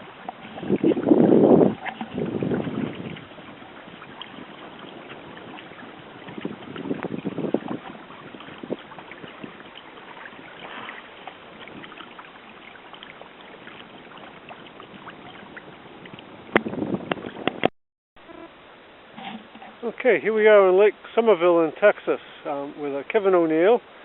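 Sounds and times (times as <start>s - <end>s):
water lapping against hull: 0.0s - 17.7s.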